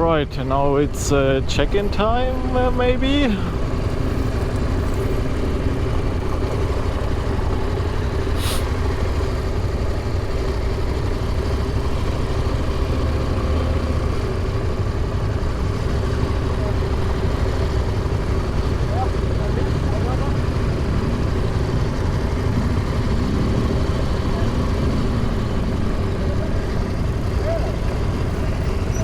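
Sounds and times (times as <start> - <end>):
motorcycle engine idling: 0.0 - 29.0
brief hiss: 8.4 - 8.8.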